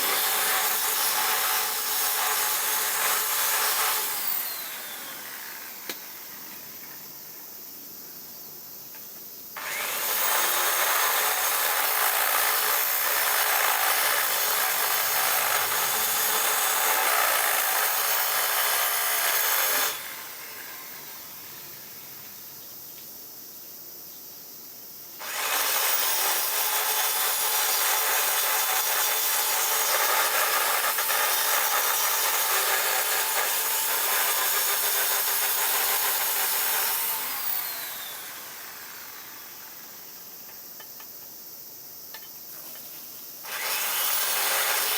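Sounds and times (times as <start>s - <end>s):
power tool running: 0.0s - 6.2s, 9.6s - 21.4s, 25.2s - 39.8s, 43.4s - 44.9s.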